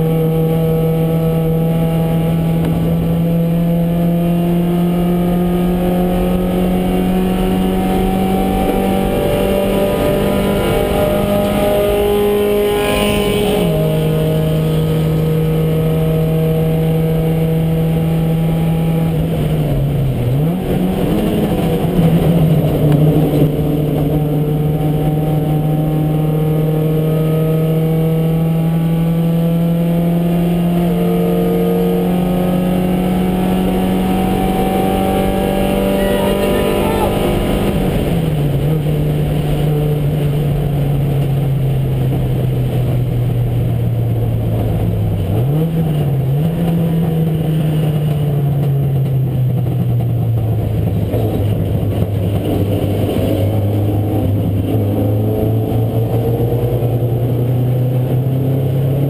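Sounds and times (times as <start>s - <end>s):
race car engine at high revs: 0.0s - 59.0s
road and wind noise: 0.0s - 59.0s.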